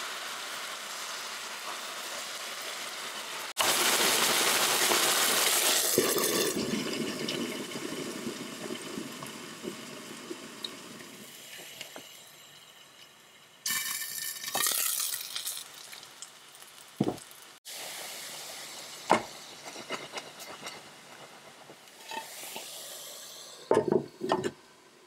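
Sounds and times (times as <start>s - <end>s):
dumplings sizzling in a pan: 0.0s - 23.7s.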